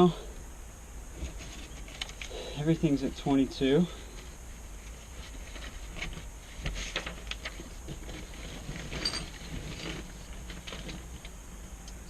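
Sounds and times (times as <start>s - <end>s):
tools clicking and rustling: 6.9s - 11.4s
metallic clink: 9.0s - 9.3s.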